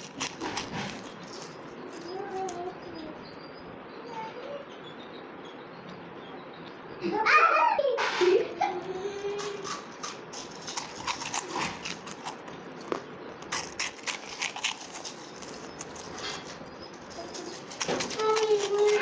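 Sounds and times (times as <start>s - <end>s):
people chewing crunchy snacks: 0.0s - 3.1s, 9.2s - 19.0s.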